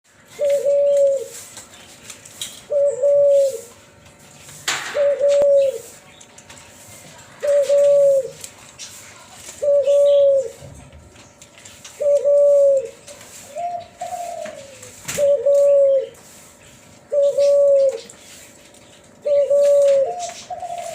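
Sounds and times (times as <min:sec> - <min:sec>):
dove cooing: 0:00.2 - 0:01.5, 0:02.7 - 0:03.8, 0:04.8 - 0:06.0, 0:07.4 - 0:08.5, 0:09.5 - 0:10.7, 0:11.9 - 0:18.4, 0:19.2 - 0:20.9.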